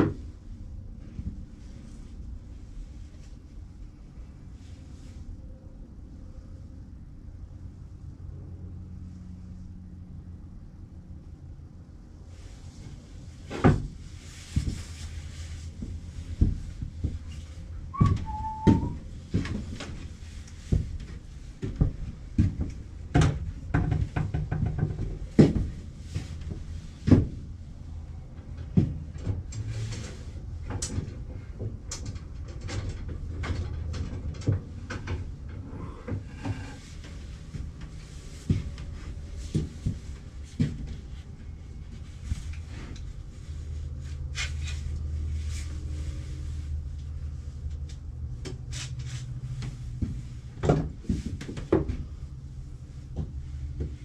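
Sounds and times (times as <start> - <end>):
low steady hum: 0.0 - 54.0
brief squeak: 17.9 - 19.1.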